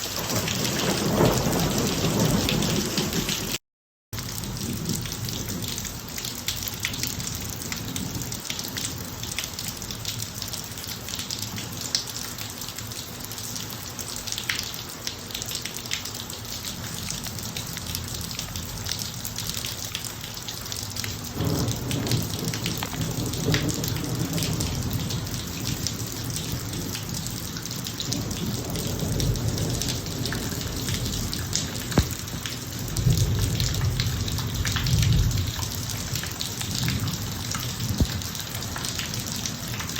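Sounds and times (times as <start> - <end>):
rain on a driveway: 0.0 - 3.6, 4.2 - 39.9
low thunder rumbles: 0.1 - 3.6, 21.3 - 39.6.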